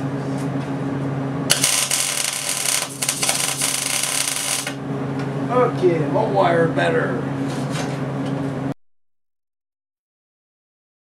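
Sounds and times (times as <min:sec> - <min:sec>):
steady low hum: 0:00.0 - 0:08.8
welder arc crackling: 0:01.5 - 0:04.8.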